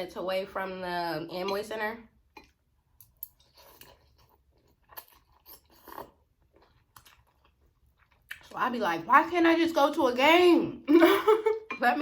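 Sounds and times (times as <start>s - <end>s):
chewing noodles: 2.3s - 8.6s.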